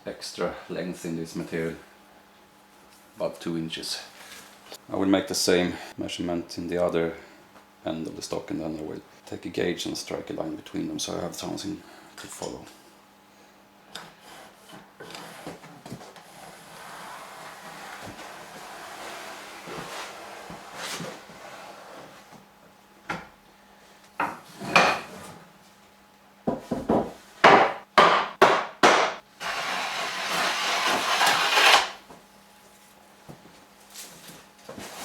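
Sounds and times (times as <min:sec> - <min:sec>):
sharp wooden knocks: 0:26.8 - 0:29.2
marking gauge scraping wood: 0:29.4 - 0:32.0
rasping stroke on wood: 0:29.4 - 0:32.0.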